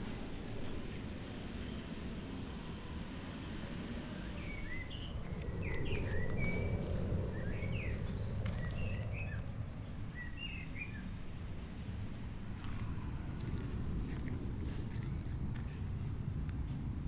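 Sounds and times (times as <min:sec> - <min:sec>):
low background rumble: 0:00.0 - 0:17.0
small birds chirping: 0:04.2 - 0:12.9.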